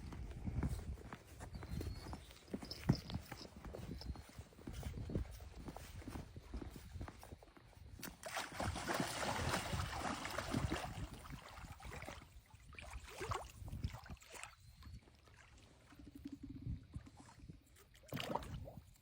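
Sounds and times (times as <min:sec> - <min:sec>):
water sloshing and splashing: 0:08.0 - 0:19.0.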